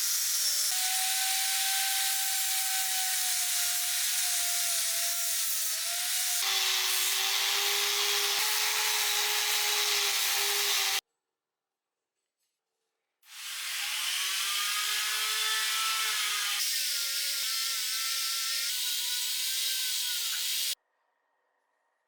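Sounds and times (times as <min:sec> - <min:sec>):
power tool motor whine: 0:05.8 - 0:11.0.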